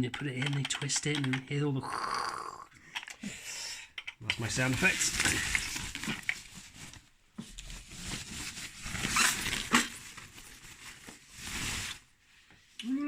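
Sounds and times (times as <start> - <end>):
cardboard and plastic rustling: 4.3 - 12.2.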